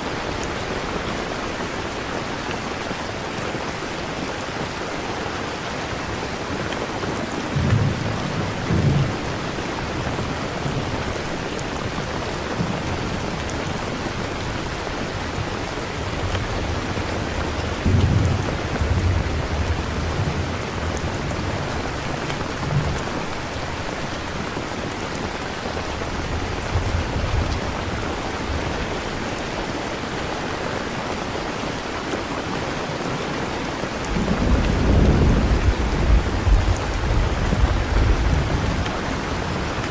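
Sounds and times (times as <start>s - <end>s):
steady rain: 0.0s - 39.9s
low rolls of thunder: 7.5s - 11.3s, 12.0s - 23.5s, 34.1s - 39.8s.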